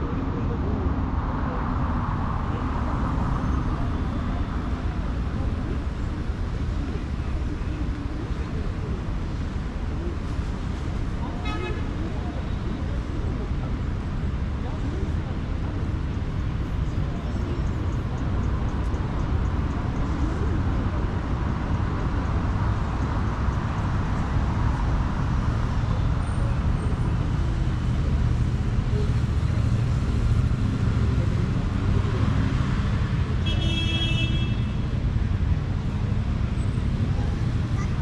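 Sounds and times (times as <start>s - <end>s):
city street traffic: 0.0s - 38.0s
car horn: 33.4s - 34.8s.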